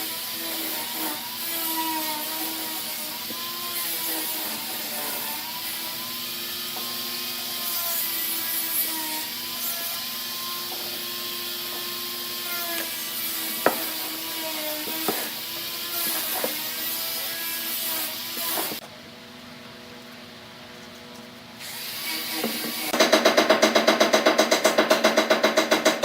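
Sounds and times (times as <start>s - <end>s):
power tool whining on wood: 0.0s - 18.8s.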